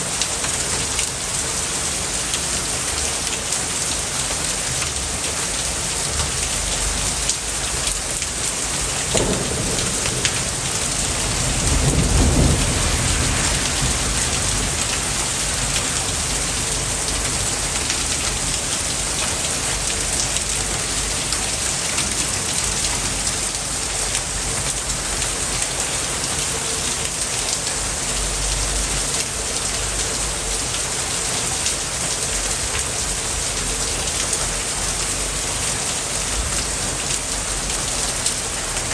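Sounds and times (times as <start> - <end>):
heavy rain: 0.0 - 38.9
thunder rolling: 6.6 - 26.4.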